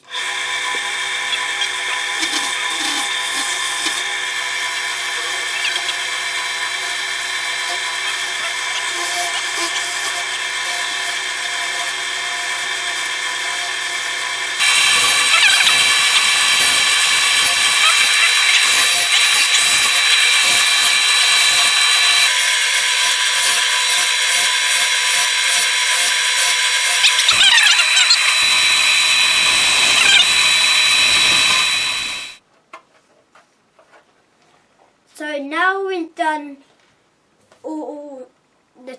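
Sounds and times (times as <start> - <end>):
wood lathe motor whine: 0.0 - 32.4
turning tool scraping wood: 0.6 - 32.4.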